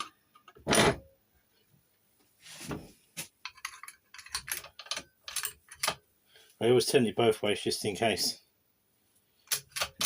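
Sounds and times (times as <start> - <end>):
small metallic clicks and rattles: 3.4 - 6.0.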